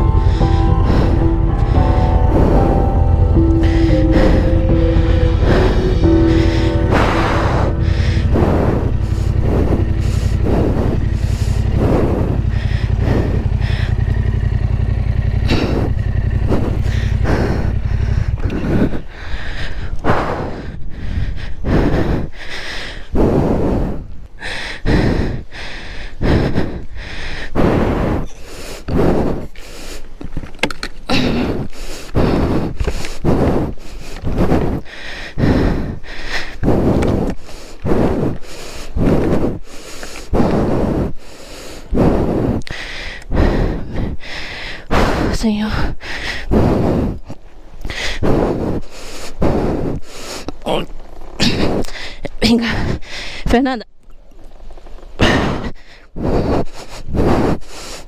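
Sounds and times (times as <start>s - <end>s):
motorcycle engine running: 0.0s - 19.2s
person panting heavily: 0.0s - 53.5s, 55.2s - 58.0s.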